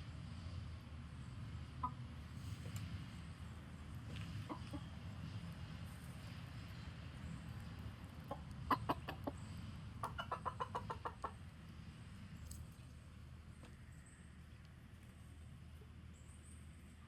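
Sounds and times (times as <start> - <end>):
chicken clucking: 4.1 - 5.1, 8.1 - 11.5.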